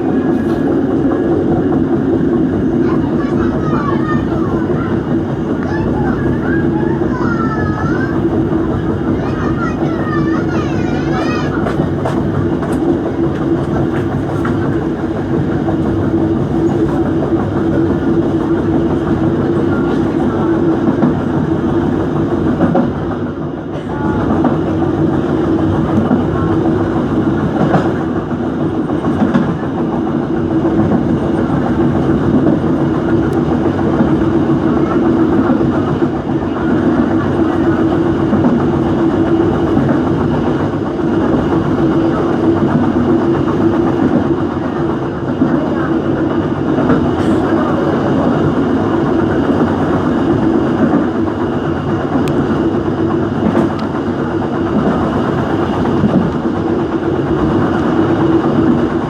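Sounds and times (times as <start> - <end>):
wheels clacking over rail joints: 0.0 - 21.4
train rumble and hum: 0.0 - 59.0.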